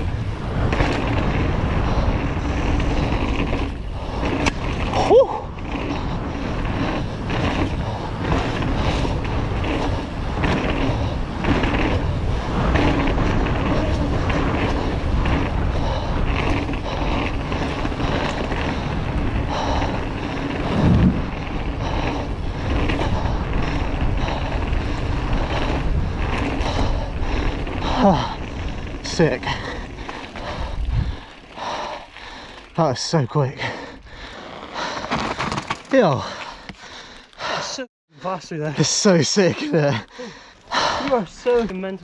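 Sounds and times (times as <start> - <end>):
wind buffeting microphone: 0.0 - 33.0
bike rattling on rough ground: 0.0 - 42.0.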